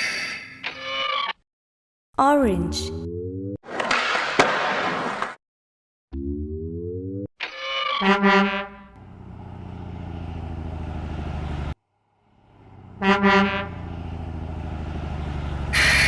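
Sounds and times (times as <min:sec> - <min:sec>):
truck horn honk: 0:08.0 - 0:09.1, 0:12.7 - 0:14.0, 0:15.6 - 0:16.0
truck engine rumble: 0:08.7 - 0:16.0.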